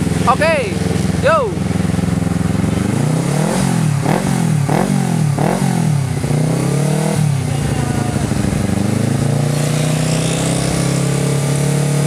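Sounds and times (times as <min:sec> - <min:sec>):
motorcycle engine blipping and revving: 0:00.0 - 0:12.0.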